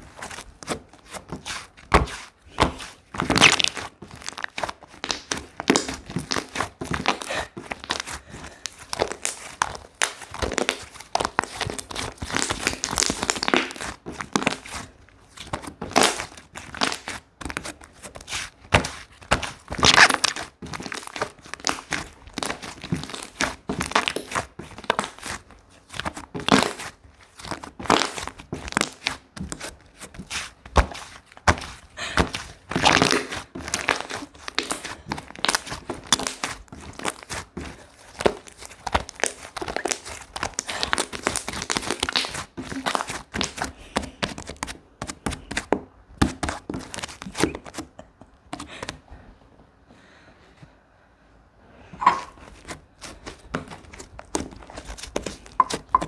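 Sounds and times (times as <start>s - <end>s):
slime crackling and popping: 3.2s - 14.6s, 19.4s - 25.2s, 32.7s - 43.6s.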